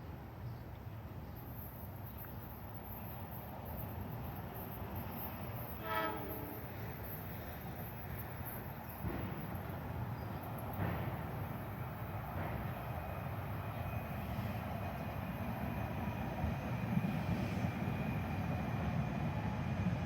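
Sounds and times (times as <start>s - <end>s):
train rumbling: 1.4s - 20.0s
train horn blast: 5.8s - 6.8s.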